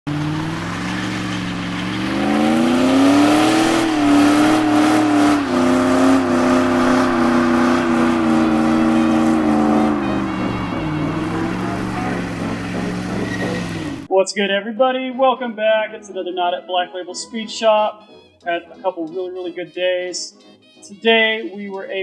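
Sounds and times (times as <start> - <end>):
turbocharged engine under load: 0.0 - 14.1.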